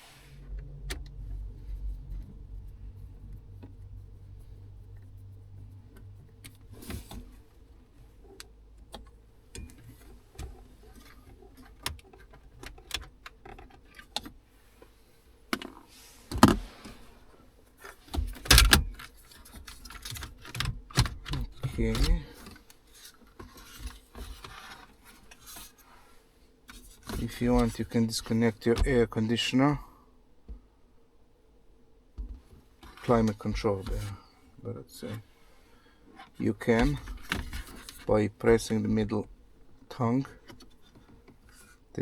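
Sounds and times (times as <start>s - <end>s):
low steady hum: 0.0s - 22.6s, 25.0s - 42.0s
hand tools and plastic trim rattling: 5.2s - 14.4s, 17.8s - 25.7s.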